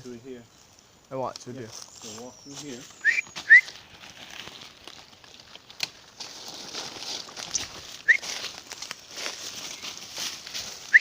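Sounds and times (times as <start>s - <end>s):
footsteps crunching through leaves: 1.6s - 11.0s
rising whistled chirp: 2.1s - 3.8s, 7.5s - 8.4s.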